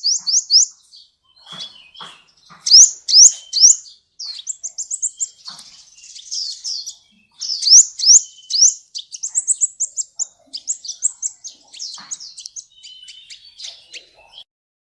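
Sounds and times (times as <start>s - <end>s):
bird singing high sharp chirps: 0.0s - 14.4s.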